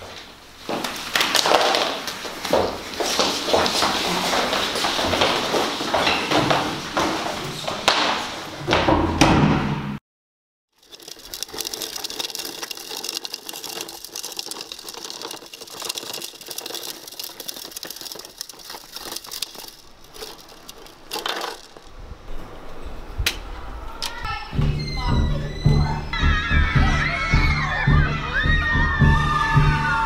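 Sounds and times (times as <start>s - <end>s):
toy wheels rattling over bricks: 10.7s - 22.3s.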